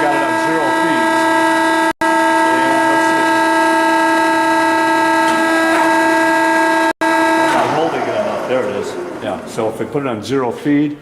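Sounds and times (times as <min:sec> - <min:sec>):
band saw whining: 0:00.0 - 0:11.0.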